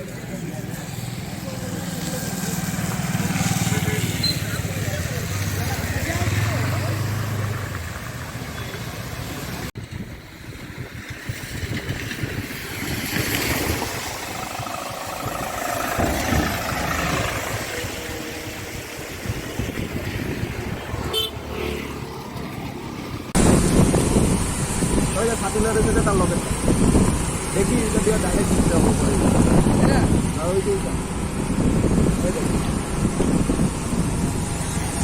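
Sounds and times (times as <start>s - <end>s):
vehicle engines passing: 0.0s - 35.0s
horns honking: 21.0s - 21.8s.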